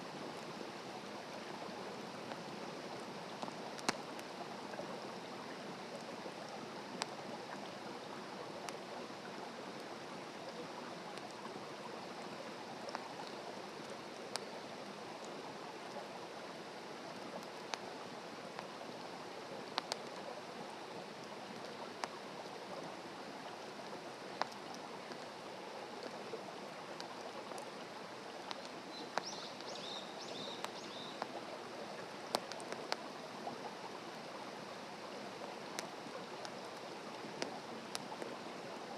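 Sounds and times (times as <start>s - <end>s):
fire crackling and popping: 3.4s - 4.4s, 19.6s - 20.2s, 32.3s - 33.1s, 35.7s - 38.3s
campfire flames hissing: 8.5s - 33.1s.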